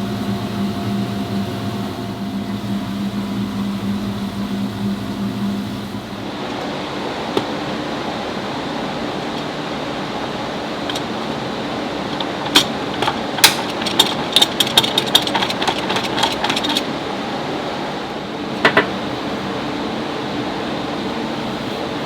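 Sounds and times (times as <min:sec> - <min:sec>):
fan-like hum: 0:00.0 - 0:22.0
sharp clicks and clatter: 0:10.9 - 0:11.2, 0:12.1 - 0:16.9.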